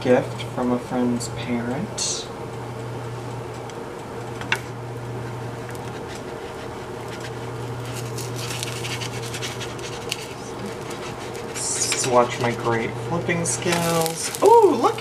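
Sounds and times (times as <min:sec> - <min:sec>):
kitchen fan humming: 0:00.0 - 0:15.0
scratchy crackling: 0:05.6 - 0:15.0
pancake sizzling in a frying pan: 0:13.5 - 0:15.0.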